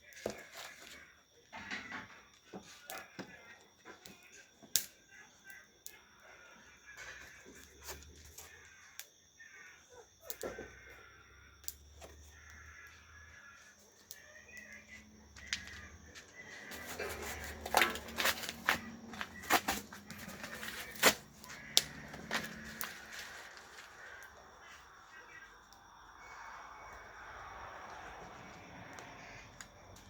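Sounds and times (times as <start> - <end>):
campfire wood cracking: 4.1 - 4.9, 15.3 - 24.4.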